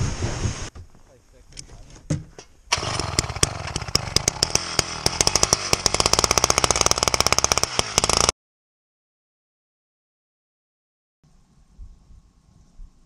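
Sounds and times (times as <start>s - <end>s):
ice auger motor: 2.7s - 8.3s.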